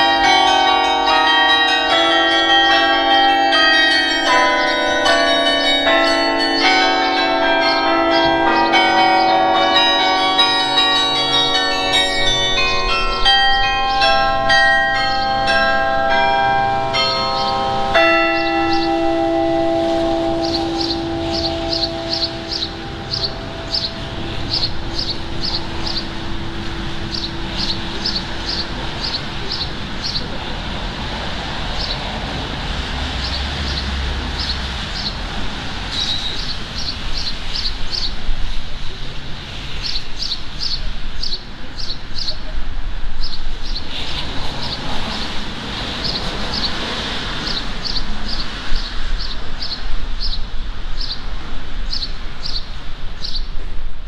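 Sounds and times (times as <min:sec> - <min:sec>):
low bell tone: 0:00.0 - 0:29.8
street traffic hum: 0:00.0 - 0:54.0
songbird chirping: 0:18.4 - 0:19.0, 0:19.9 - 0:30.3.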